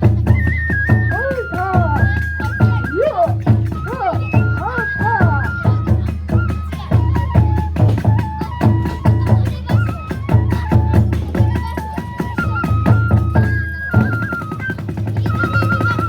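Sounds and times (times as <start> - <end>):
bamboo flute melody: 0.0 - 16.0
fast regular drum strokes: 0.0 - 16.0.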